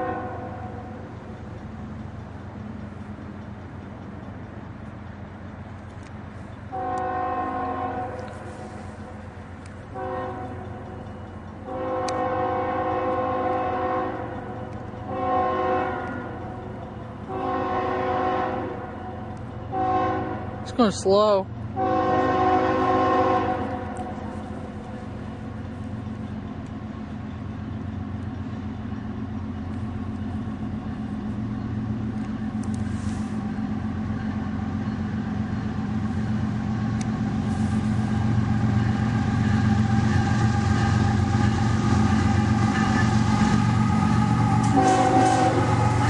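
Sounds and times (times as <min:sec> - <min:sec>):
train horn: 0:00.0 - 0:00.8, 0:06.7 - 0:08.8, 0:09.9 - 0:10.7, 0:11.6 - 0:14.4, 0:15.1 - 0:16.5, 0:17.2 - 0:20.6, 0:21.8 - 0:24.3, 0:38.6 - 0:46.0
diesel locomotive engine rumble: 0:00.0 - 0:46.0.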